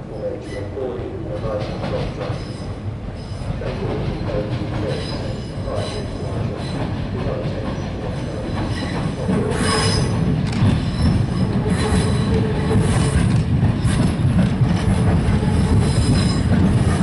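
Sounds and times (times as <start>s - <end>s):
electric train rolling slowly: 0.0s - 17.0s
wheels squealing on track: 8.7s - 10.2s, 10.9s - 13.2s.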